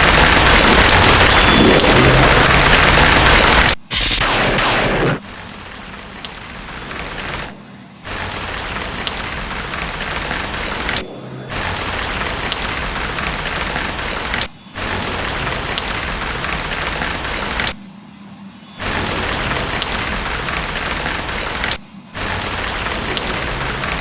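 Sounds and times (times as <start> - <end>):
low rumble: 0.0 - 17.7
heavy rain: 0.0 - 17.8, 18.8 - 24.0.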